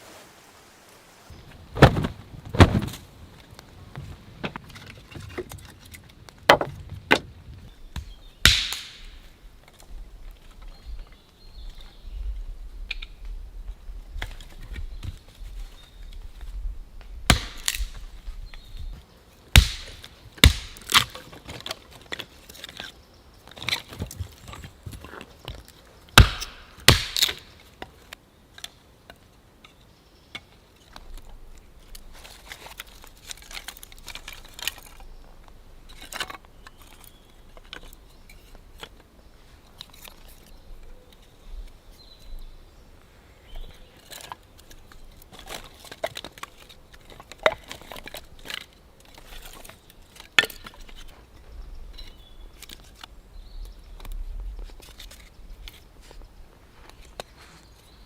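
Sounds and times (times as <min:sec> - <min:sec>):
handling and rustling: 0:00.0 - 0:07.8, 0:19.9 - 0:29.3, 0:30.7 - 0:42.4, 0:43.6 - 0:53.2, 0:54.0 - 0:58.0
sharp knocks and cracks: 0:07.9 - 0:09.8, 0:17.3 - 0:18.0, 0:19.5 - 0:22.9, 0:25.5 - 0:27.9.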